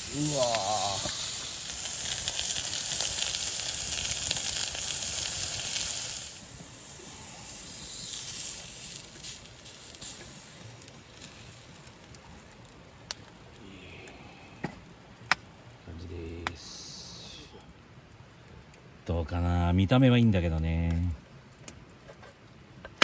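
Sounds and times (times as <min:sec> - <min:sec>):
meat sizzling on griddle: 0:00.0 - 0:13.0.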